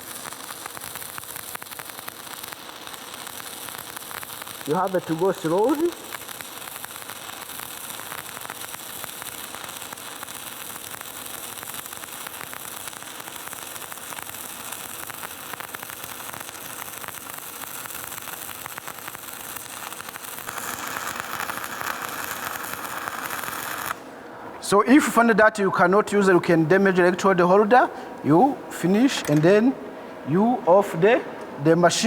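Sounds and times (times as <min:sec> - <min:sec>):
welding arc crackling: 0:00.0 - 0:24.1.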